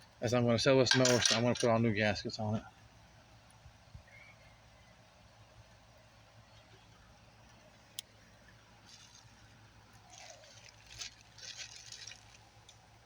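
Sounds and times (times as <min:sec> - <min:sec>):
rustling handling noises: 0:08.8 - 0:13.0.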